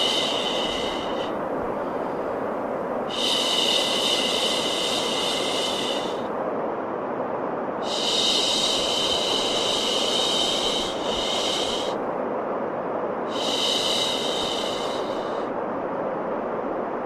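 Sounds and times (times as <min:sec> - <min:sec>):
higher hiss: 0:00.0 - 0:06.4, 0:07.8 - 0:12.1, 0:13.2 - 0:15.6
white noise hiss: 0:00.0 - 0:17.0.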